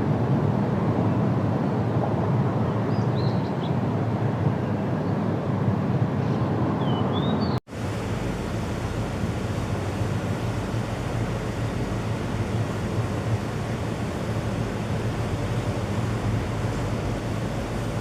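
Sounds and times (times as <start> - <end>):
faint high bird chirp: 6.8 - 7.6
rushing water: 7.7 - 18.0.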